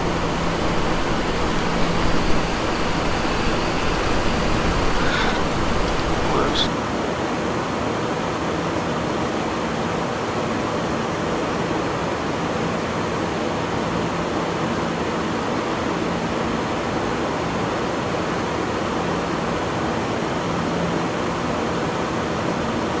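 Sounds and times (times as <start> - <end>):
faint low hum: 0.0 - 6.7
steady rushing hiss: 0.0 - 6.7.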